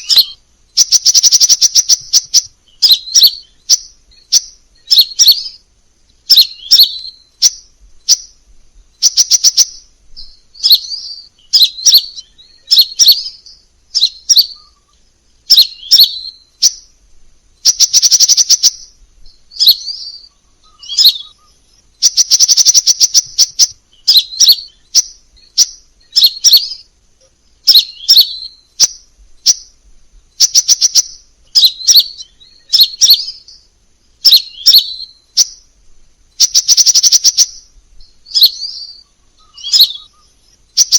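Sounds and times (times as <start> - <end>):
bird chips and trills: 0.0 - 40.9.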